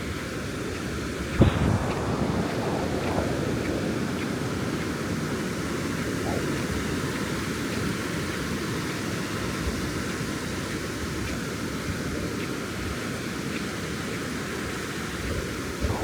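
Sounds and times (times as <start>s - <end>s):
ocean surf breaking: 0.8s - 9.7s.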